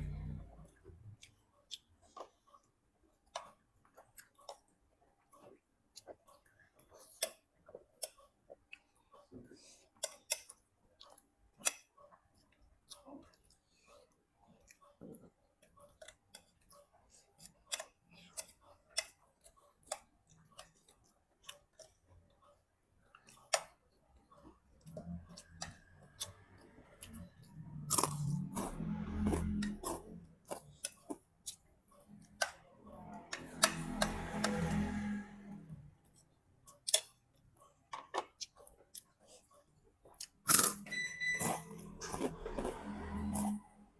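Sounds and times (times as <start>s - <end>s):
low rumbling hum: 0.0s - 0.8s.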